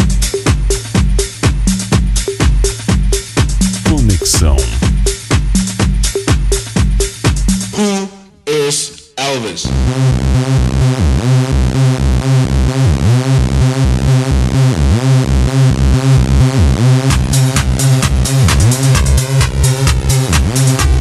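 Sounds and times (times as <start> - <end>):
electronic dance music: 3.8 - 5.3.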